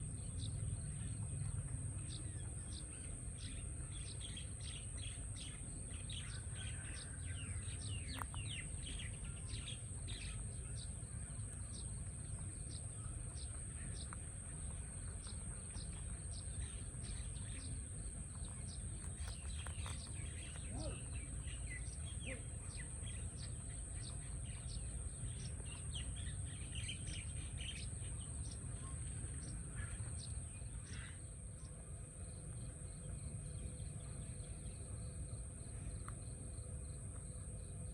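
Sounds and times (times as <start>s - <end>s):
small birds chirping and twittering: 0.0s - 37.9s.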